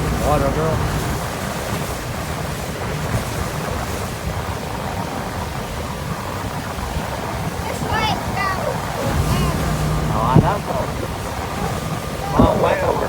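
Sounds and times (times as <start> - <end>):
steady low rumble: 0.0 - 1.4, 9.0 - 11.0
water rushing past boat: 0.0 - 13.0
wind buffeting microphone: 0.0 - 13.0.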